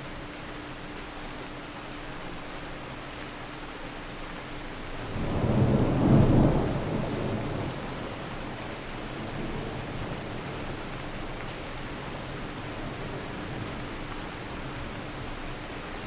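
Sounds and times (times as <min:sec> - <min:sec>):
steady rain: 0:00.0 - 0:16.0
thunder rumbling: 0:05.0 - 0:10.8.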